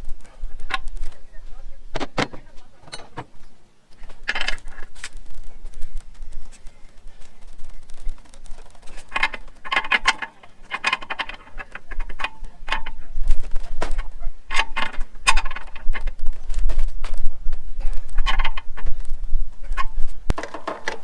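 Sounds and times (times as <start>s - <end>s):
metal parts and tools clinking: 2.0s - 3.4s, 7.9s - 17.2s.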